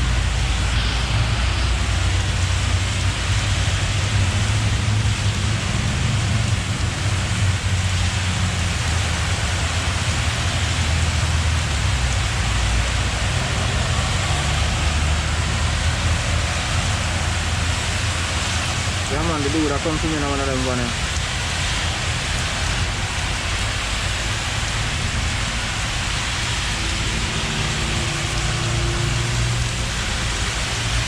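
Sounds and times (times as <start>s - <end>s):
low rumble: 0.0s - 5.1s
rain hiss: 0.0s - 31.0s.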